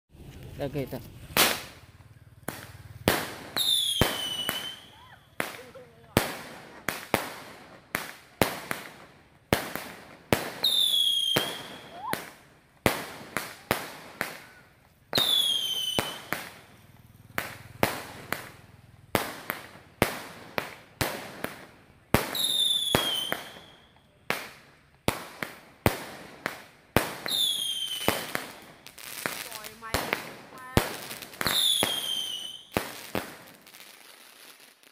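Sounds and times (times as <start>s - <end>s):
fireworks banging: 0.1s - 34.9s
falling firework whistle: 2.5s - 5.4s, 10.6s - 12.4s, 14.3s - 16.7s, 22.3s - 24.2s, 27.3s - 29.7s, 31.4s - 32.8s.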